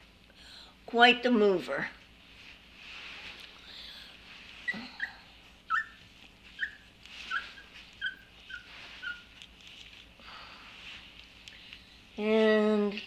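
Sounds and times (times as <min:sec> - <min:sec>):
puppy squeaking and whimpering: 0:04.6 - 0:09.4.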